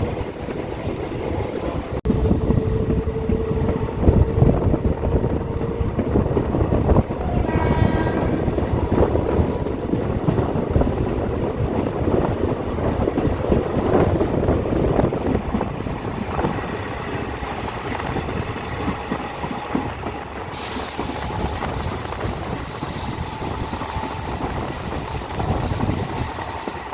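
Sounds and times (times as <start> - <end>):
train wheels clattering on track: 0.0 - 26.9
train horn blast: 2.2 - 10.4.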